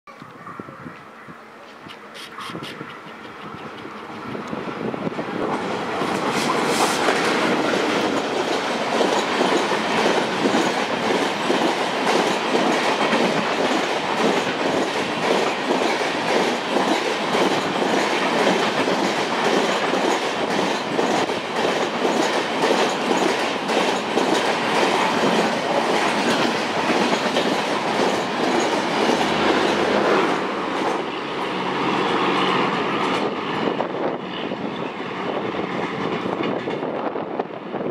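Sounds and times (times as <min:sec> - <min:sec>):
train drawing away: 0:01.6 - 0:37.8
train wheels clattering over rail joints: 0:05.5 - 0:34.2, 0:35.7 - 0:37.0.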